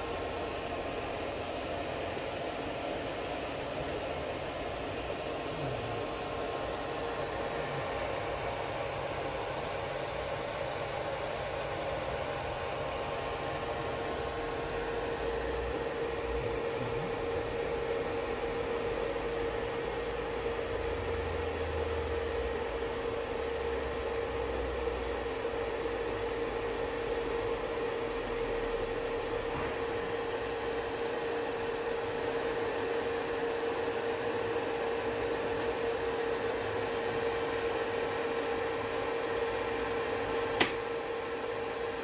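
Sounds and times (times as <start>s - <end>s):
electric motor whirring hum: 0.0s - 38.7s
high-pitched inverter whine: 0.0s - 42.0s
sharp click: 40.6s - 40.9s.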